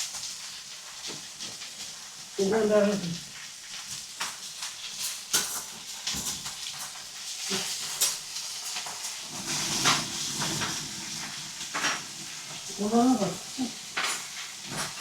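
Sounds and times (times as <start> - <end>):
meat sizzling on hot stone: 0.0 - 15.0.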